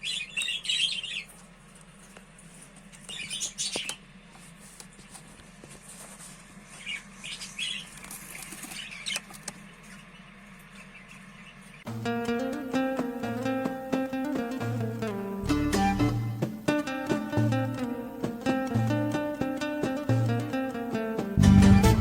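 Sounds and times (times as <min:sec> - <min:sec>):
budgerigars chirping: 0:00.0 - 0:01.3, 0:03.0 - 0:04.0, 0:06.8 - 0:11.8.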